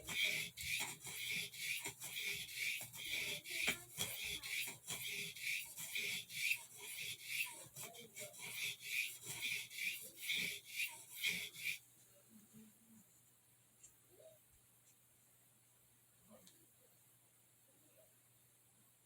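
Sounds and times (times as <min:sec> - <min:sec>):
knife blade scraping on whetstone: 0:00.0 - 0:11.8.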